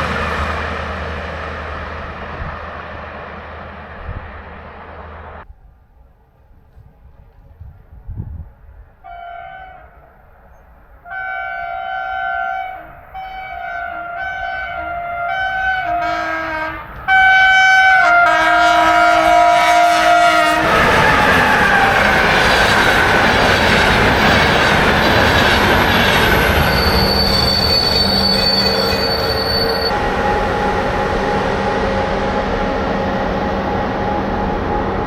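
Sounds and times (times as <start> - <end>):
train wheels rumbling on rail: 0.0 - 35.0
train horn blasts: 9.0 - 10.3, 11.0 - 23.4
high wheel squeal: 20.6 - 35.0.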